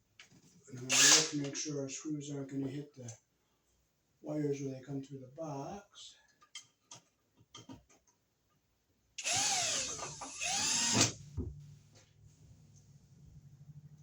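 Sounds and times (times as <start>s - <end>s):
cordless drill driving screws: 0.9s - 1.4s, 9.2s - 11.2s.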